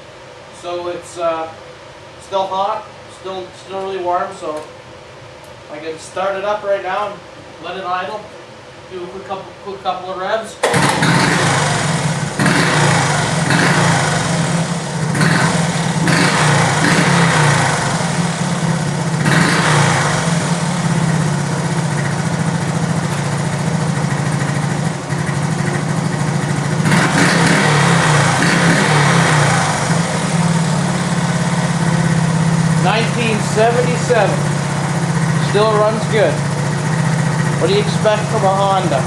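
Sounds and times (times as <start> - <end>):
small engine idling and revving: 10.6 - 39.0.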